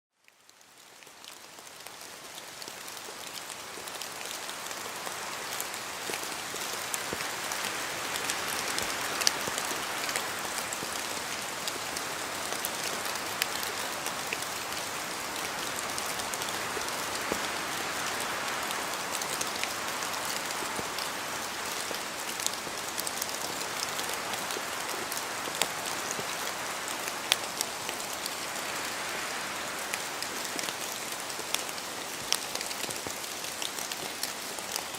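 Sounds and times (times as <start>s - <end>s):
rain pattering in a forest: 0.1s - 34.9s.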